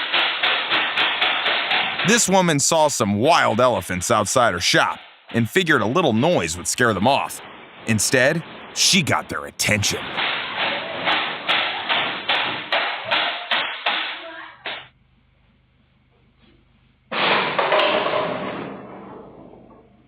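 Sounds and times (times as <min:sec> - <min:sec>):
rapid repeated banging: 0:00.0 - 0:14.2.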